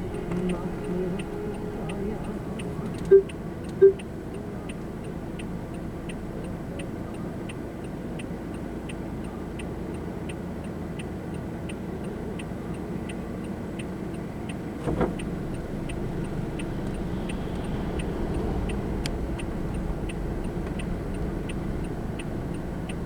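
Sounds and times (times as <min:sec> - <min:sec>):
short beep: 0:00.0 - 0:04.1
car cabin hum: 0:00.0 - 0:07.6, 0:12.0 - 0:23.0
turn signal ticking: 0:00.0 - 0:23.0.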